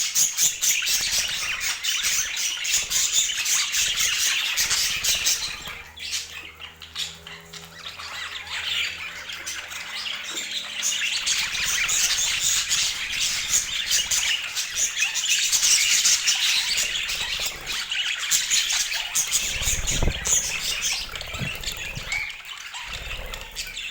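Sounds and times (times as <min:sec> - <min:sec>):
budgerigars chirping and squawking: 0:00.0 - 0:23.9.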